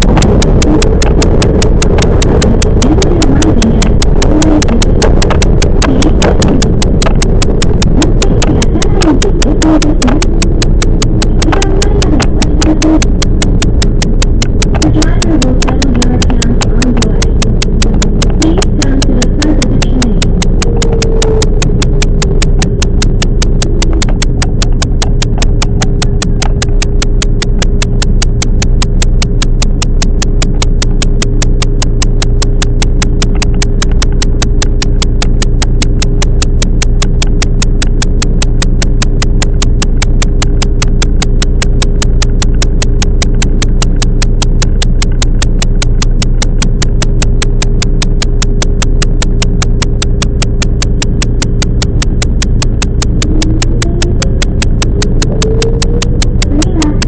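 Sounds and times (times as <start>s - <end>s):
electric train rumble and hum: 0.0s - 57.0s
fast regular clicking: 0.0s - 57.0s
rising whine: 0.0s - 57.0s.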